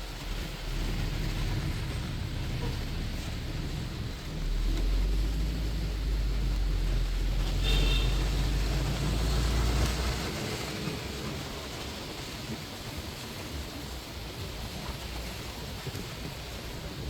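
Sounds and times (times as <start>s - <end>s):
moving bus rumble: 0.0s - 17.0s
rain and traffic noise: 0.0s - 17.0s
high horn beep: 7.6s - 8.6s.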